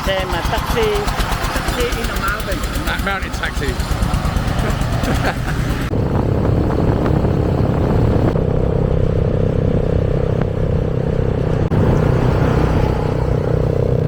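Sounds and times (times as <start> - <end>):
motorcycle engine rumble: 0.0 - 14.0
wind noise: 5.6 - 14.0.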